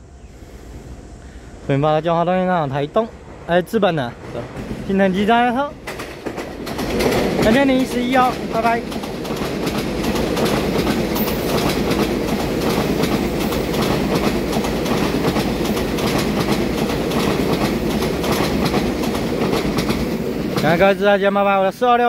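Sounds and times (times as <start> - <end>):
train wheels rumbling on rails: 1.6 - 22.0
wheels clicking over rail joints: 4.2 - 21.0.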